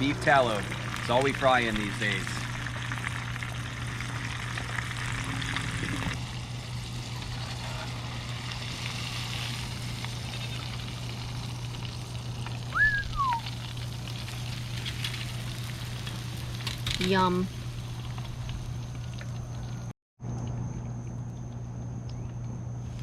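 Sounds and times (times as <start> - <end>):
fish sizzling in deep fat: 0.0 - 19.9
low hum: 0.0 - 23.0
short falling chirp: 12.8 - 13.4.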